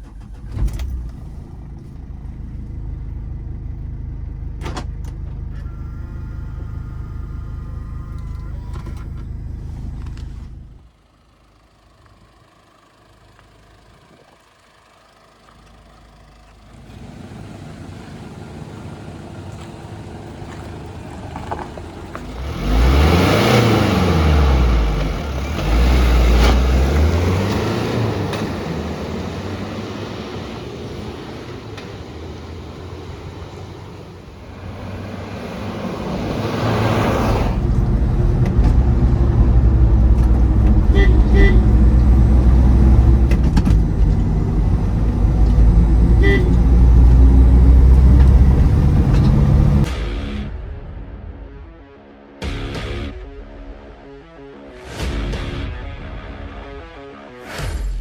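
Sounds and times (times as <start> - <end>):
diesel engine revving: 0.0 - 53.4
loud rumble: 17.0 - 56.9.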